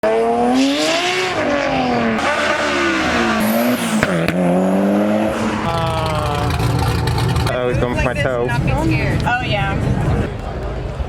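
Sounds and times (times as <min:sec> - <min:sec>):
car engine revving: 0:00.0 - 0:07.6
sharp crack: 0:03.6 - 0:04.6.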